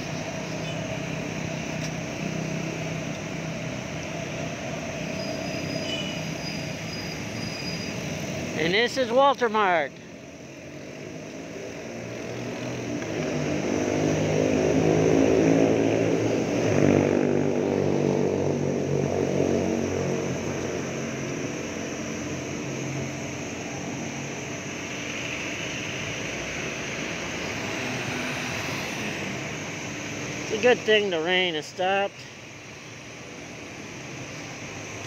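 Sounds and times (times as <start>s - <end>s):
passing engine drone: 11.4s - 30.6s.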